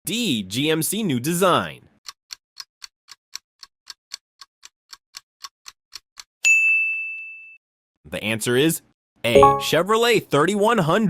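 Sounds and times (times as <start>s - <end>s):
bright ding: 9.3s - 9.8s.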